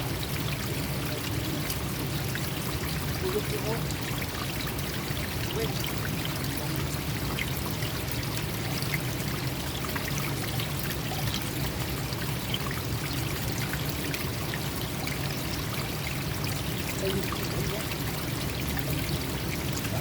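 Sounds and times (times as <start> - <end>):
stream flowing and splashing: 0.0 - 20.0.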